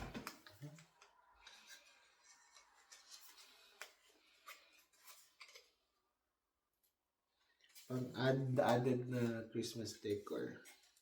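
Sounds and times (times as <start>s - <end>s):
faint clicks of decoration pieces: 0.2s - 5.8s.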